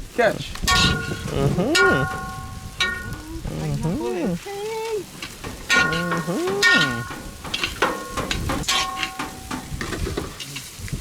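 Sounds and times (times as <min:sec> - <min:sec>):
food sizzling in a pot: 0:00.1 - 0:11.0
stirring scraping strokes: 0:00.4 - 0:11.0
drawn-out vocal call: 0:00.7 - 0:07.9.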